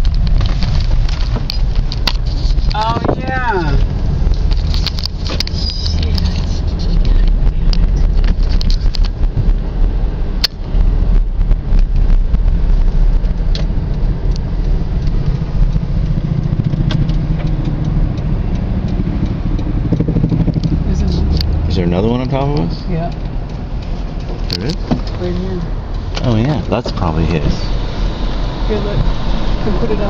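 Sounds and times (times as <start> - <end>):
car engine and road rumble: 0.0 - 30.0
small clicks and knocks: 3.8 - 9.2, 13.2 - 21.6.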